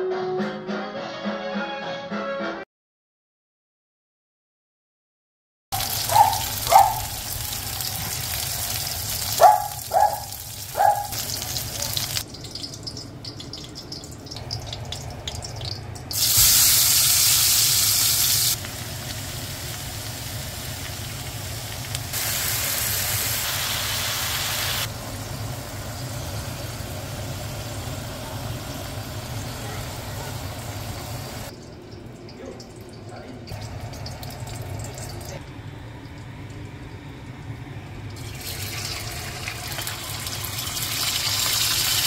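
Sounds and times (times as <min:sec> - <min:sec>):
onions sizzling in hot oil: 0:05.8 - 0:31.5, 0:38.2 - 0:42.0.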